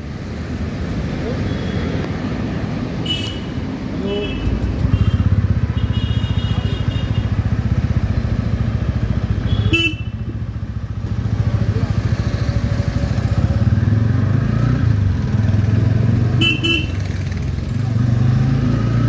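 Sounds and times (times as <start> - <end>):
motorcycle engine running: 4.2 - 14.2.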